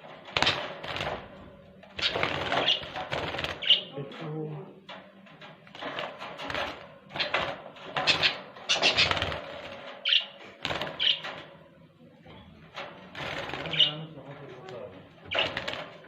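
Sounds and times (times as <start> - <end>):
wings flapping: 0.0 - 4.0, 5.6 - 11.6, 12.8 - 16.0
scuffling and cage rattling: 0.0 - 16.0
budgerigars squawking: 8.0 - 9.3.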